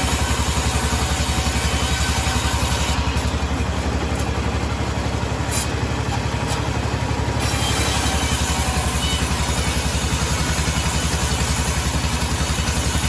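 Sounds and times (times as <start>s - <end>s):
sawmill engine running: 0.0s - 13.0s.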